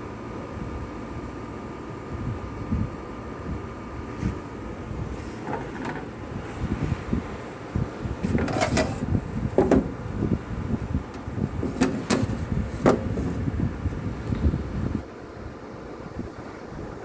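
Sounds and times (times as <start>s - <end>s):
sharp knocks and clatters: 8.2s - 10.1s, 11.2s - 13.4s.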